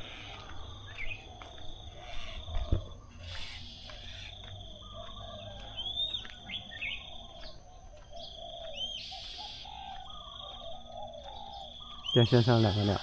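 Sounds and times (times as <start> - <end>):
songbirds chirping: 0.0 - 13.0
high insect trill: 8.2 - 13.0.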